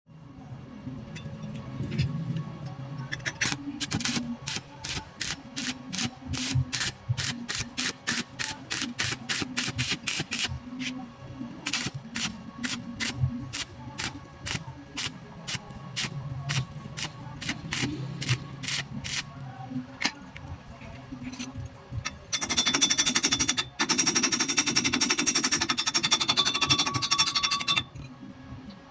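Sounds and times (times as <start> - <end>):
electric welding arc crackling: 3.4 - 10.9, 11.7 - 19.3.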